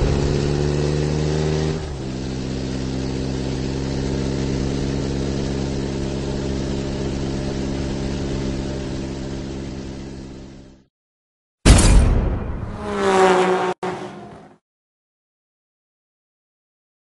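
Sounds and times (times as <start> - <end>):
car engine running: 0.0 - 10.9.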